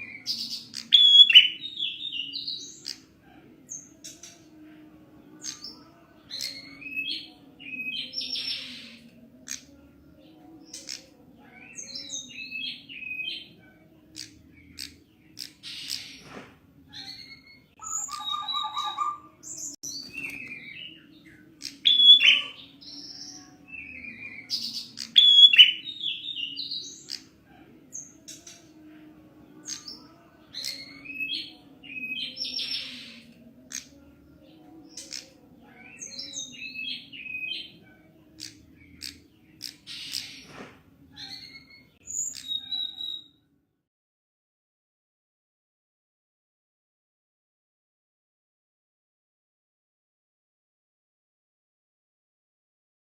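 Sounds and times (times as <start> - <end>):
bird chirps and trills: 16.9 - 28.9, 34.6 - 40.5, 41.2 - 43.3.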